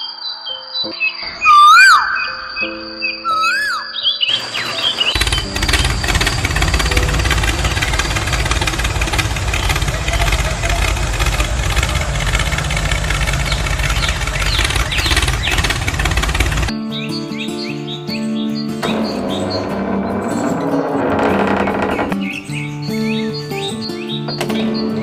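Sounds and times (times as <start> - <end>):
tractor engine rumbling: 4.3 - 16.7, 18.8 - 22.4.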